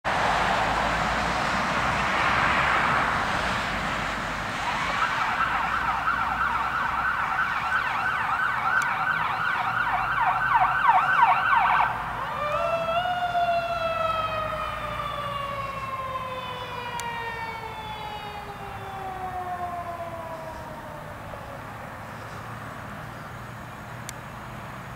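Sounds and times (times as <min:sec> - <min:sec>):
emergency vehicle siren: 0:00.1 - 0:22.7.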